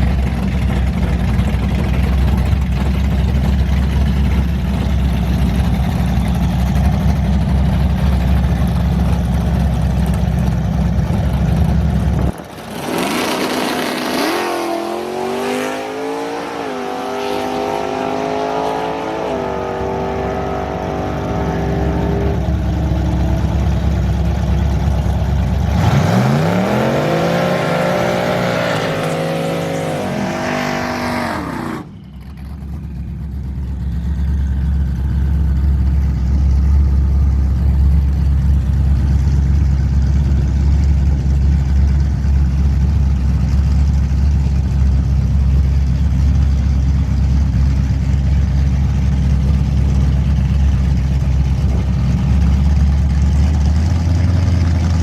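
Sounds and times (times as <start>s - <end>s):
low engine drone: 0.0s - 14.0s, 16.9s - 55.0s
engine accelerating through gears: 11.0s - 35.7s.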